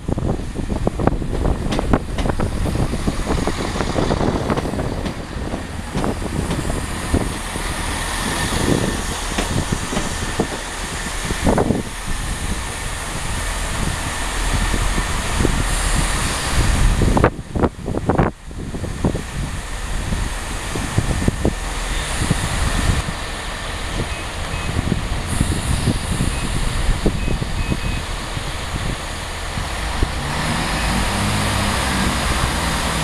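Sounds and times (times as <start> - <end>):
train engines and wheels rumbling: 0.0 - 33.0
irregular knocks: 9.1 - 10.6.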